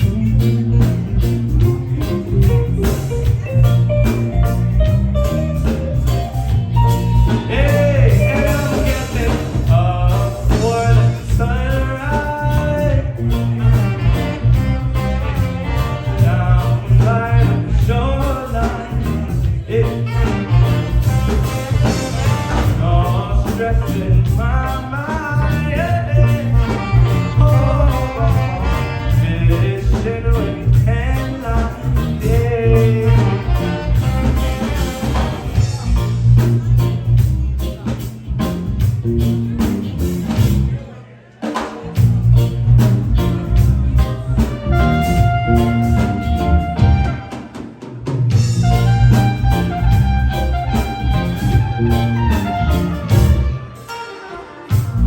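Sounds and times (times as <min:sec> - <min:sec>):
person singing melody: 0:00.0 - 0:15.1
live reggae band playing: 0:00.0 - 0:55.0.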